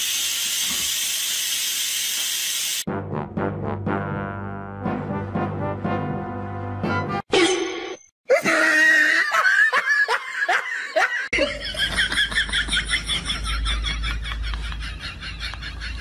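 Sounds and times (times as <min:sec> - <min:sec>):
people laughing heartily: 0:08.3 - 0:16.0.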